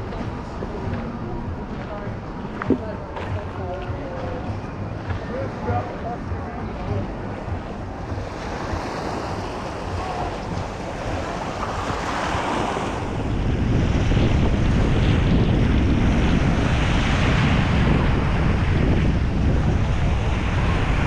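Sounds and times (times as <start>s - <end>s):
sea waves washing on shore: 0.0s - 21.0s
wind buffeting microphone: 0.0s - 21.0s.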